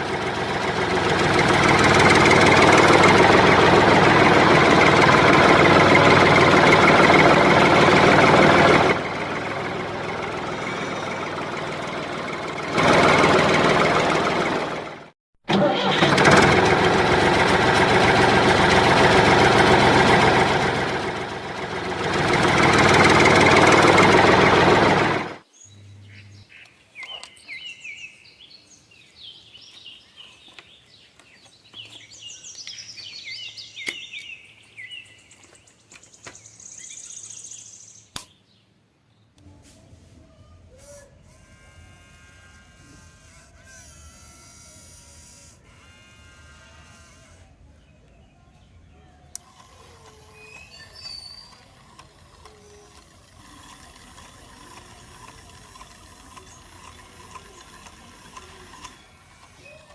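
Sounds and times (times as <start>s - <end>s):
small motor buzzing: 0.0s - 14.8s, 40.7s - 47.8s, 49.3s - 59.9s
birds chirping: 25.5s - 39.4s, 47.6s - 54.0s, 54.8s - 59.9s
electric motor whirring: 40.9s - 47.6s, 49.3s - 59.9s.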